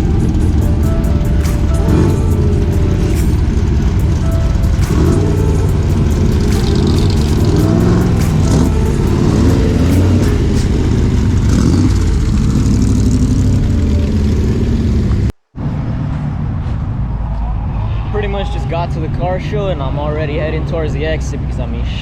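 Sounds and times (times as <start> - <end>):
car engines revving: 0.0 - 16.6.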